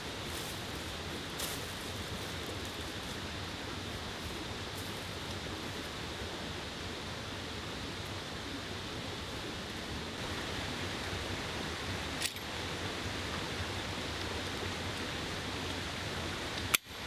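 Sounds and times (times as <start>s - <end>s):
mountain stream rushing: 0.0s - 17.0s
sharp click: 12.2s - 12.4s.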